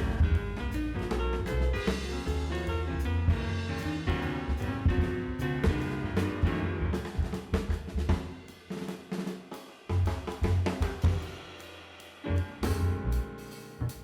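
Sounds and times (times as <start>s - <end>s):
drum kit fill: 0.0s - 14.0s
jazz swing band music: 0.0s - 14.0s.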